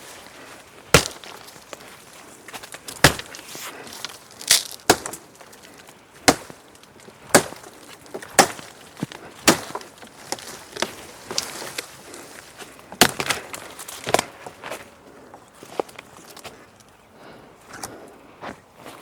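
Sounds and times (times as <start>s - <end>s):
wood being chopped: 0.8s - 1.9s, 2.6s - 5.5s, 6.2s - 11.9s, 12.9s - 14.4s.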